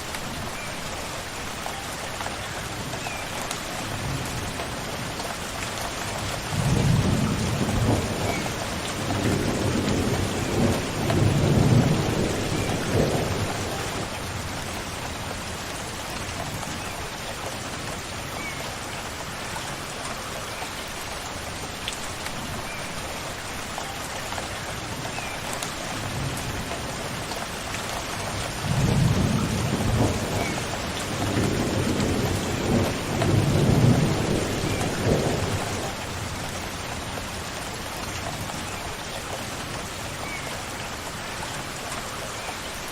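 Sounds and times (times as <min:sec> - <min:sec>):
steady rain falling: 0:00.0 - 0:42.9
thunder rolling: 0:09.1 - 0:14.1.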